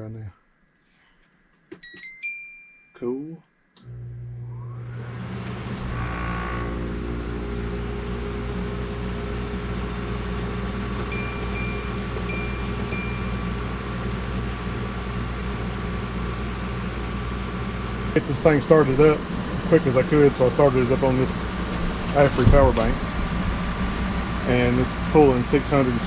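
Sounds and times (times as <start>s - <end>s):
electronic chime: 1.8s - 3.0s, 11.1s - 14.1s
air conditioner hum: 7.6s - 26.0s
short high beeps: 11.1s - 13.7s.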